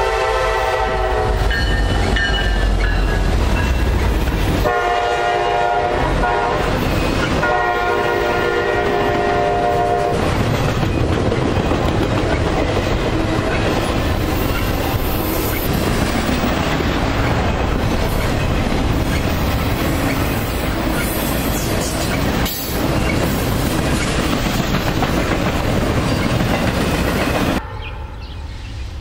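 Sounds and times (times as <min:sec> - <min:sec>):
train wheels rumbling: 0:00.0 - 0:27.6
clickety-clack over rail joints: 0:08.7 - 0:27.6
quiet outdoor background: 0:27.6 - 0:29.0.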